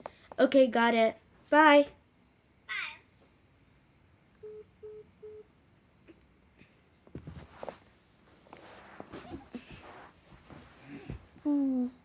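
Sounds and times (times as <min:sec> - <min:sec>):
phone call-ended beeps: 0:04.4 - 0:06.3.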